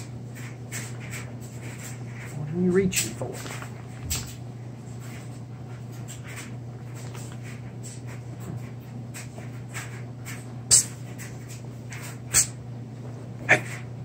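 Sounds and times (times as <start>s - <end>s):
steady low hum: 0.0s - 14.0s
breathy mouth puffs and sputters: 10.7s - 11.0s, 12.3s - 12.6s.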